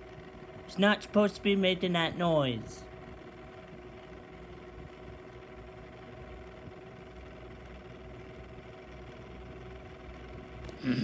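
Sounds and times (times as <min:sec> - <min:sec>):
box fan humming and droning: 0:00.0 - 0:11.0.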